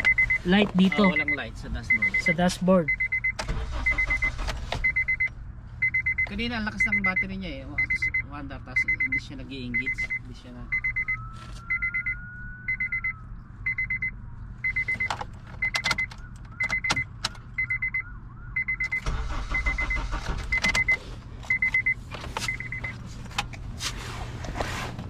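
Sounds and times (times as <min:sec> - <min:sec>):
car warning chime beeping: 0:00.0 - 0:23.0
starter cranking engine: 0:19.0 - 0:20.9.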